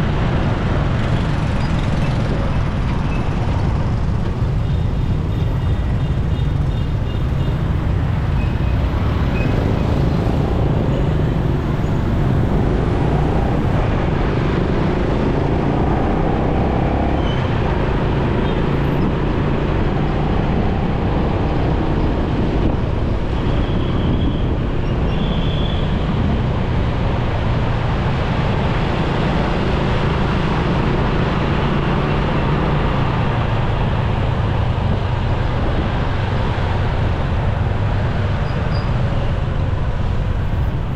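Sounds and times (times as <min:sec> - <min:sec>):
road noise: 0:00.0 - 0:40.9
surrounding vehicles: 0:00.0 - 0:40.9
motorcycle engine rumble: 0:01.1 - 0:13.9, 0:39.4 - 0:40.9.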